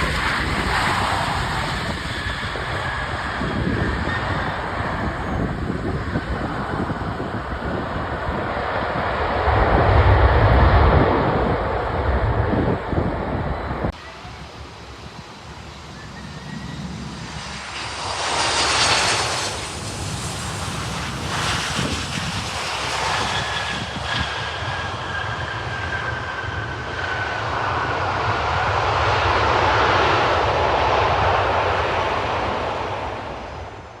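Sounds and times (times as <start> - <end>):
jet engines running: 0.0 - 34.0.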